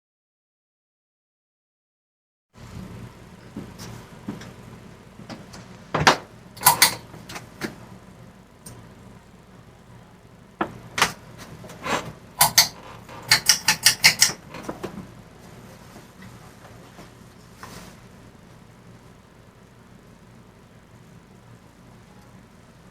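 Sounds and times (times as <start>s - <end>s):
faint low hum: 2.6s - 22.9s
sharp clicks and knocks: 10.6s - 15.1s.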